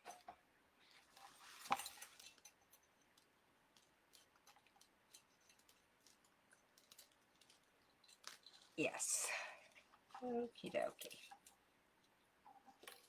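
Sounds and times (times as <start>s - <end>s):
rustle of crafting materials: 0.0s - 13.0s
light ticks of wire: 1.0s - 8.8s.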